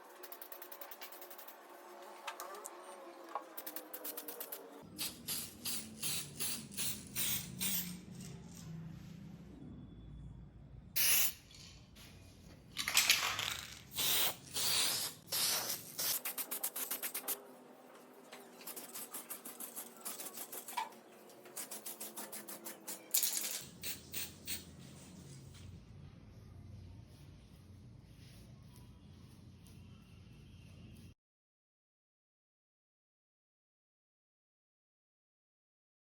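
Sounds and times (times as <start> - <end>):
spray can rattling: 0.0 - 1.6, 3.5 - 8.3, 11.0 - 11.7, 12.8 - 17.4, 18.6 - 20.9, 21.5 - 24.6
spray paint can spraying: 0.0 - 1.7, 3.4 - 8.3, 11.0 - 11.7, 12.8 - 17.4, 18.6 - 20.9, 21.5 - 24.7.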